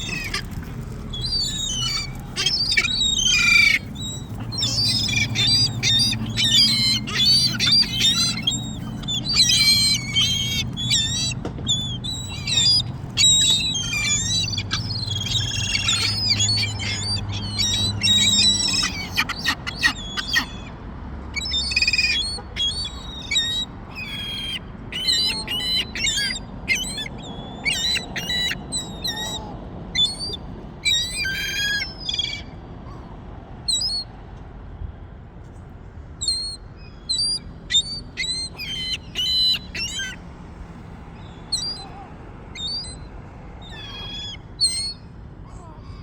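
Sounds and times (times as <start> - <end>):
low background rumble: 0.0 - 33.7
gulls calling: 0.0 - 34.2, 36.2 - 46.0.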